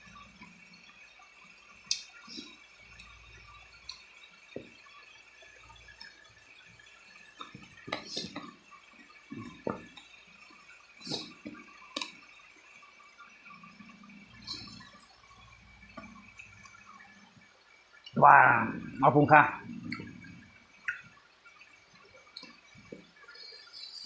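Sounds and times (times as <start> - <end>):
chewing with wet smacks: 11.0 - 12.2, 19.7 - 21.2.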